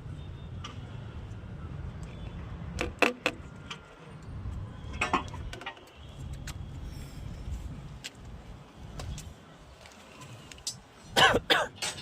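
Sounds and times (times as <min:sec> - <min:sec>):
metal tools clinking and knocking: 0:11.8 - 0:12.0.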